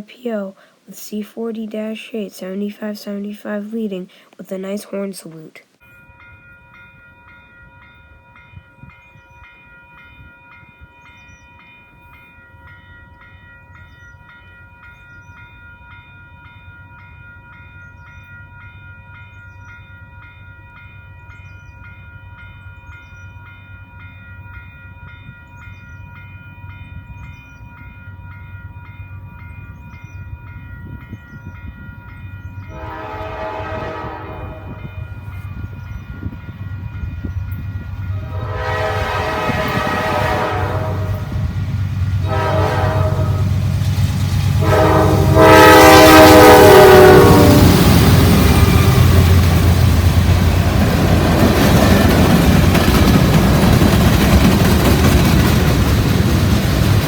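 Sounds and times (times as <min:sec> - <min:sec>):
crossing warning bell ringing: 0:05.8 - 0:56.0
rumble of freight train: 0:06.0 - 0:57.0
locomotive air horn blast: 0:32.7 - 0:35.0, 0:38.2 - 0:41.4, 0:42.2 - 0:43.6, 0:44.6 - 0:47.9.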